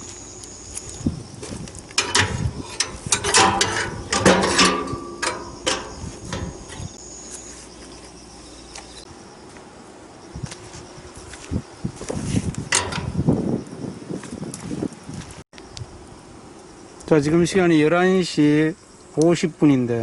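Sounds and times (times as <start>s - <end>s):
metal clanking and scraping: 2.0s - 7.0s, 12.1s - 13.2s.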